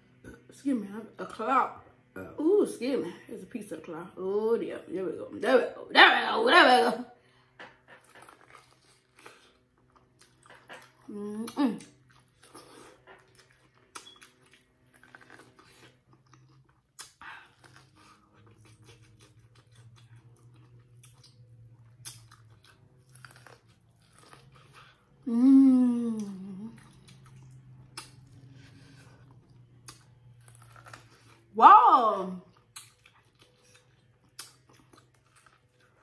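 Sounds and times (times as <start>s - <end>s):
chewing with crunchy clicks: 7.4s - 11.1s, 11.8s - 25.2s, 26.8s - 31.5s, 32.5s - 36.0s.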